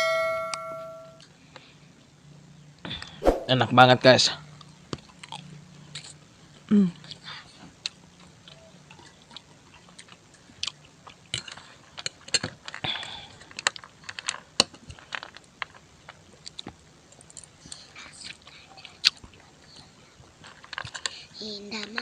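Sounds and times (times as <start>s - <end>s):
person chewing food: 5.0s - 6.2s, 7.8s - 21.2s.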